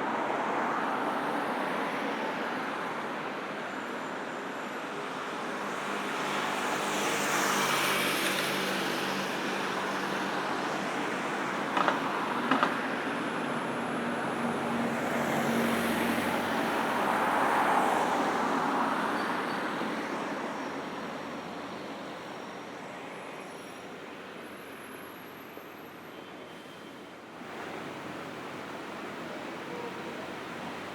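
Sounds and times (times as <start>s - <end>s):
cars passing: 5.6s - 22.4s.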